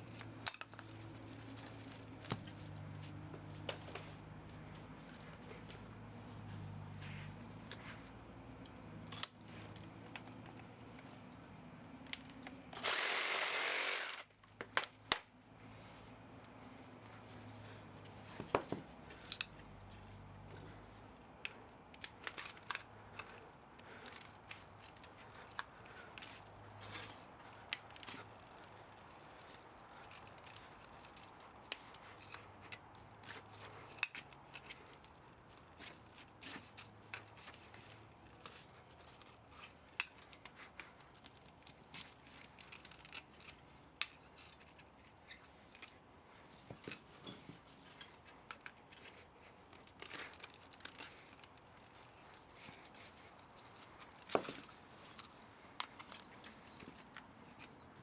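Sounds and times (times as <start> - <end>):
hand tools clicking on metal: 12.1 - 15.2.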